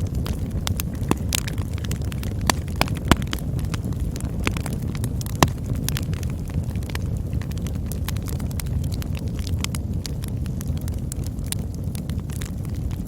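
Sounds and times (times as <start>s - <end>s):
campfire rumble: 0.0s - 13.0s
fire crackling and popping: 0.0s - 13.0s
loud fire snaps: 0.0s - 13.0s.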